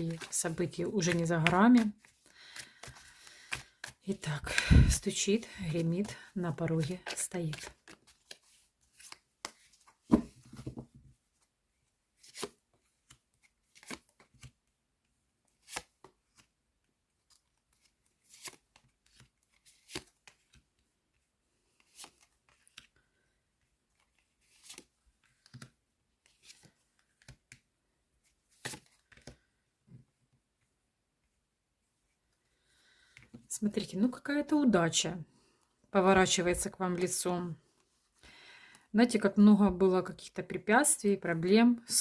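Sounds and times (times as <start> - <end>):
cards shuffled and laid down: 0.0 - 11.5, 12.2 - 14.6, 15.5 - 16.6, 17.2 - 20.8, 21.7 - 23.0, 23.9 - 30.0
cards clattering: 0.1 - 4.0.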